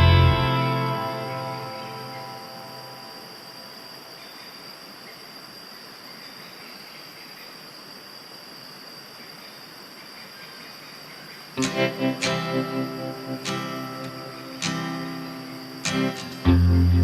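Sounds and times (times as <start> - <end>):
high-pitched insect drone: 0.0 - 6.2, 11.6 - 17.0.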